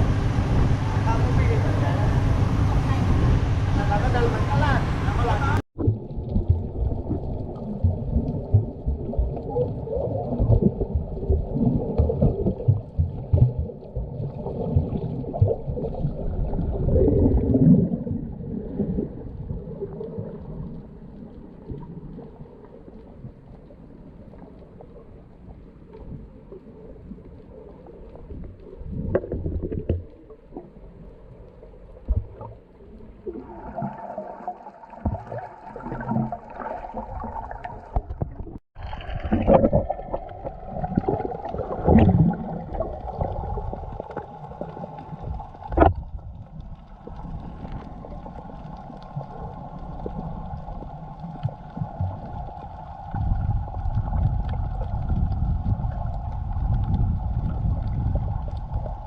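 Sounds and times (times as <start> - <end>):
boat engine running: 0.0 - 5.6
water splashing against hull: 0.0 - 59.0.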